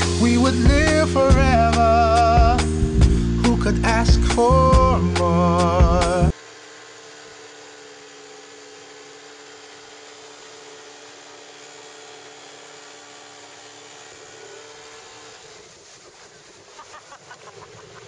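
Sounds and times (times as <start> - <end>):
wind: 6.3 - 18.0
water noise: 15.4 - 18.0.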